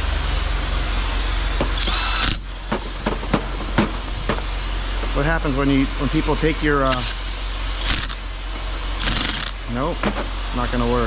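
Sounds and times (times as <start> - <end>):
power drill running: 1.0 - 4.7, 6.8 - 10.6.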